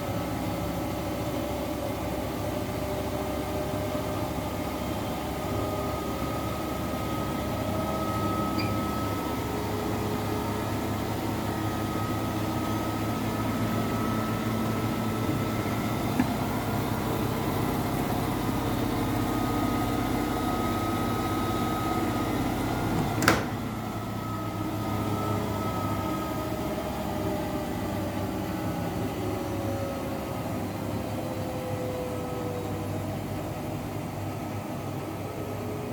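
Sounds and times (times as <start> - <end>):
washing machine humming: 0.0 - 35.9
washing machine click: 23.0 - 23.6.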